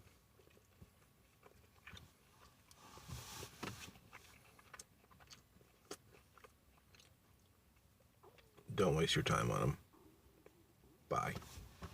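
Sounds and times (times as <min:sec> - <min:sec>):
person chewing crunchy food: 0:00.0 - 0:02.8, 0:03.6 - 0:08.7.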